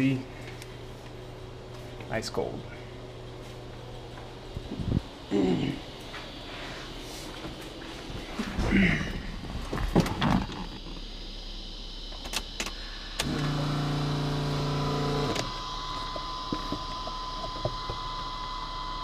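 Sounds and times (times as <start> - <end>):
small electric motor humming: 12.7 - 19.0.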